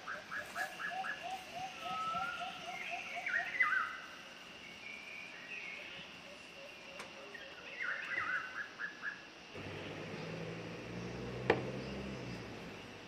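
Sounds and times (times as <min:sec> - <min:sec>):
birds chirping: 0:09.6 - 0:13.0.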